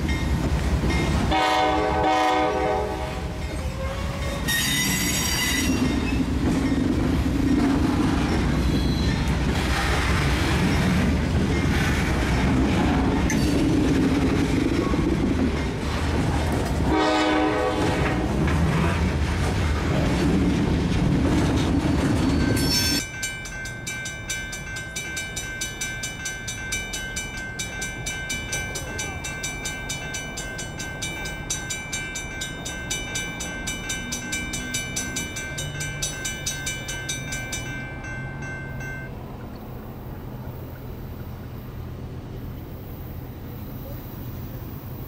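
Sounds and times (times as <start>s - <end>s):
crossing bell ringing: 0.0s - 9.5s, 21.9s - 39.4s
train rumbling: 0.0s - 45.0s.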